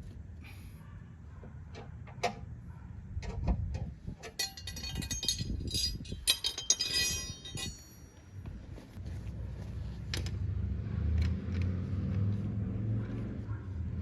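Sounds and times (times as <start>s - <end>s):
metal objects clinking: 4.2s - 8.4s.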